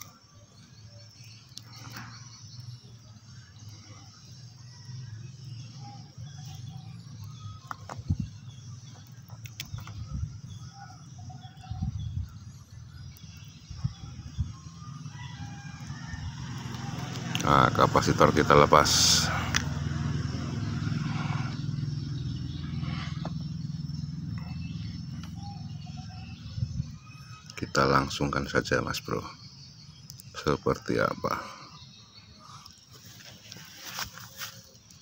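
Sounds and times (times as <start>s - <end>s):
birds chirping faintly: 0.0s - 35.0s.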